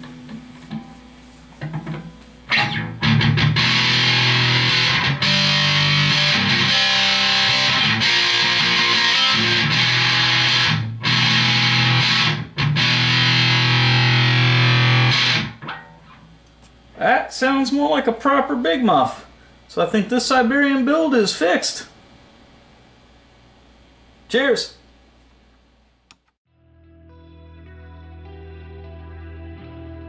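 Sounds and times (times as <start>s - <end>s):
fuzzed electric guitar chords: 1.7s - 16.4s, 26.5s - 30.0s.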